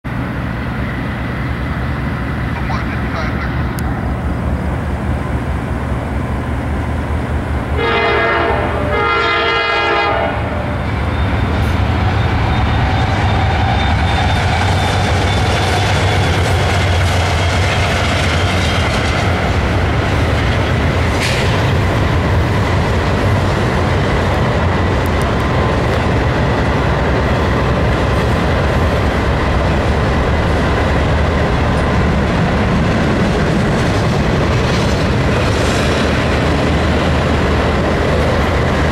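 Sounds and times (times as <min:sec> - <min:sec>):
diesel engines droning: 0:00.1 - 0:38.9
locomotive horn blasts: 0:07.8 - 0:10.8
wheels clattering on rails: 0:10.8 - 0:38.9.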